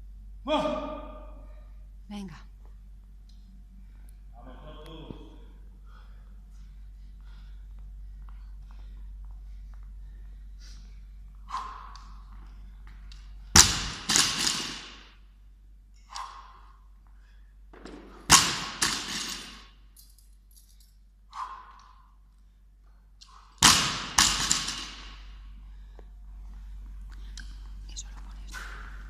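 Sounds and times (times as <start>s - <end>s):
barbell thudding on floor: 17.7s - 19.7s, 23.6s - 25.3s.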